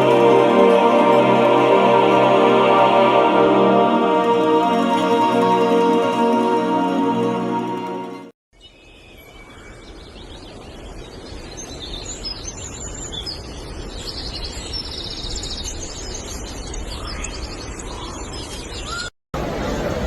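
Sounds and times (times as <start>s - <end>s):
outdoor background noise: 8.5s - 20.0s.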